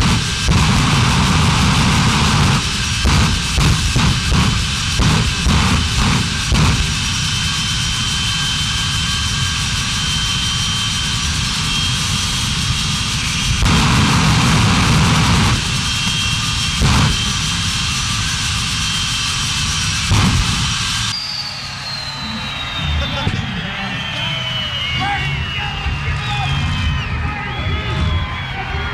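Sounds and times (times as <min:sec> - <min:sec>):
monster truck engine revving: 0:00.0 - 0:08.0, 0:13.2 - 0:28.8
high whine: 0:00.0 - 0:28.9.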